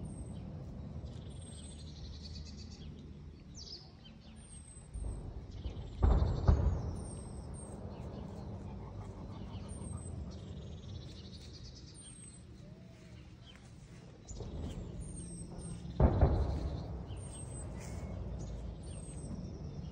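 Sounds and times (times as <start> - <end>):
steady low rumble: 0.0 - 19.9
loud rumbling burst: 4.9 - 11.4, 14.2 - 19.9.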